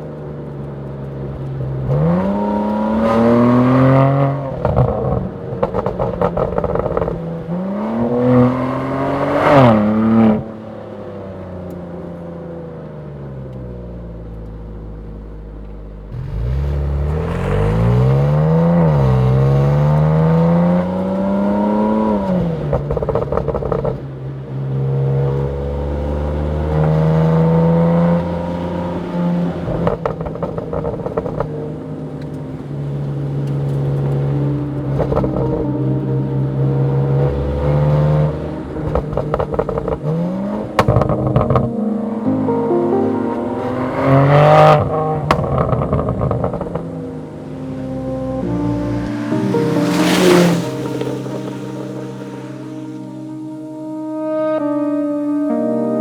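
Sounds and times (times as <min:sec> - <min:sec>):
car engine revving through gears: 0:00.0 - 0:53.7.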